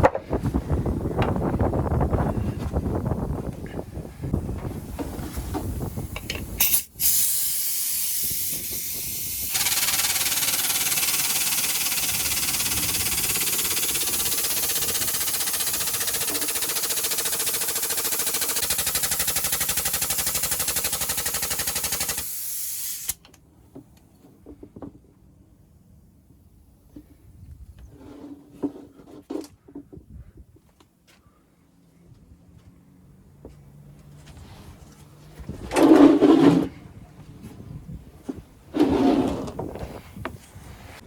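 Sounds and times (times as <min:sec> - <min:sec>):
compressed air hissing: 0:06.6 - 0:16.5, 0:20.2 - 0:23.2.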